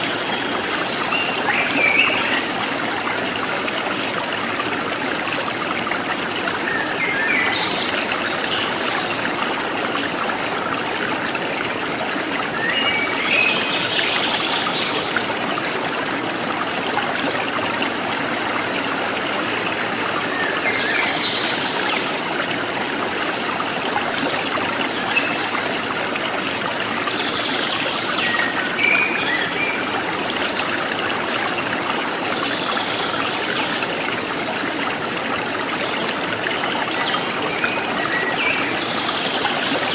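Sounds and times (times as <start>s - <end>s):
stream trickling and splashing: 0.0s - 39.9s.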